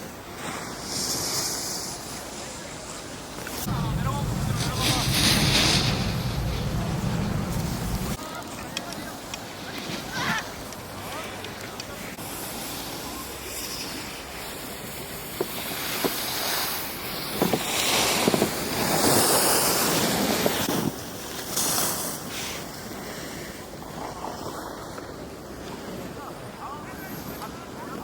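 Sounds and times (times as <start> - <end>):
skis scraping over snow: 3.3 - 8.6
wind rushing on microphone: 3.4 - 8.2.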